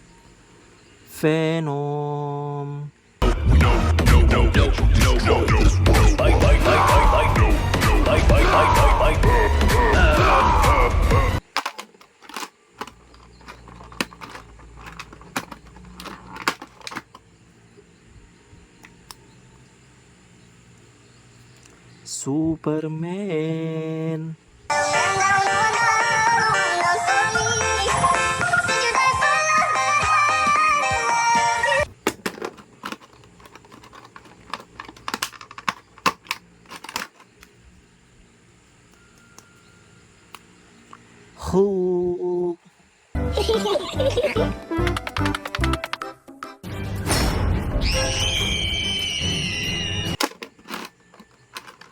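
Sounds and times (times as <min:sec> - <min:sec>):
faint steady hum: 0:00.0 - 0:03.5, 0:04.2 - 0:44.9
plastic clicks and rattles: 0:11.4 - 0:17.2, 0:31.8 - 0:37.6, 0:44.8 - 0:46.1, 0:50.2 - 0:51.9
plastic clicks and taps: 0:44.8 - 0:46.1.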